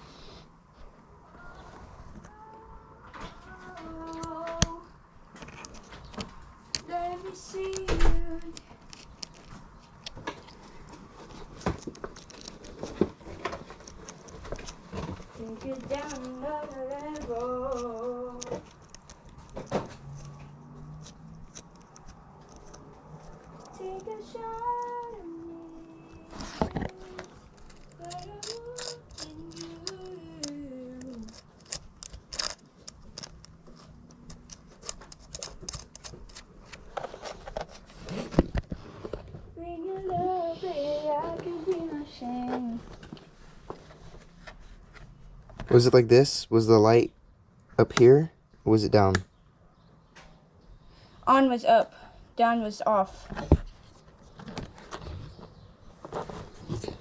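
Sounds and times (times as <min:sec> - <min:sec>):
small parts clicking: 0:11.8 - 0:12.9, 0:15.6 - 0:19.6, 0:21.0 - 0:25.2, 0:26.8 - 0:36.9.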